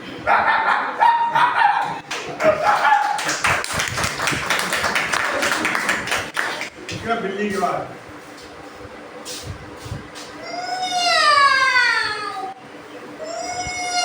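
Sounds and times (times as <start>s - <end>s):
sharp taps or claps: 2.1s - 7.0s.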